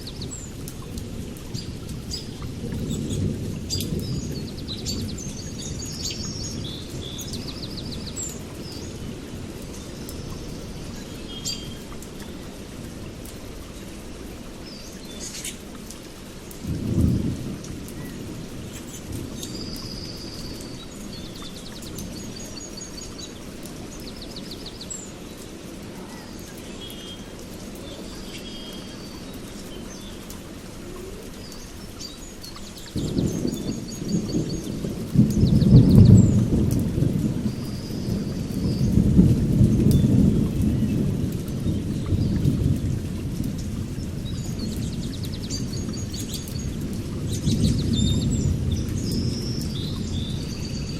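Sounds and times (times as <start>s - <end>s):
steady rain: 0.0s - 50.9s
thunder rumbling: 16.6s - 20.9s, 32.8s - 50.9s
birds chirping: 17.9s - 36.5s.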